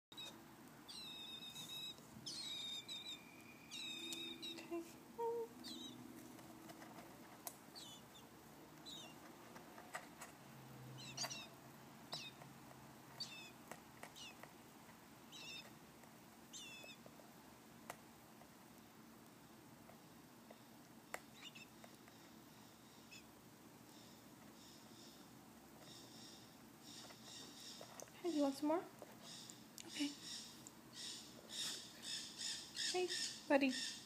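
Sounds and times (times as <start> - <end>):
baby bird chirping: 0.1 - 6.1, 7.7 - 9.3, 10.9 - 12.5, 13.1 - 14.5, 15.2 - 15.8, 16.4 - 17.1, 20.5 - 34.0.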